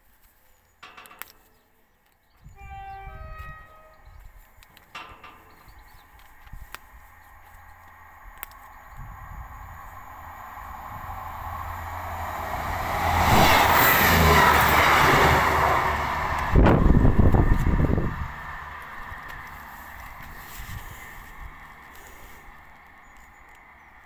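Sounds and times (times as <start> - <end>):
train rumbling on rails: 2.4 - 24.0.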